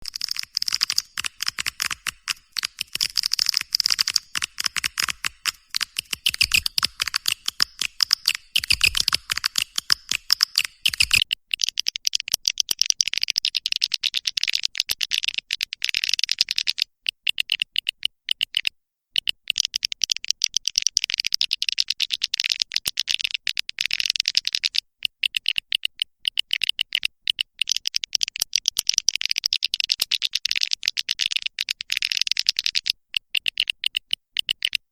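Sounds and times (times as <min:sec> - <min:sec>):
swiftlets chirping: 0:00.0 - 0:11.2.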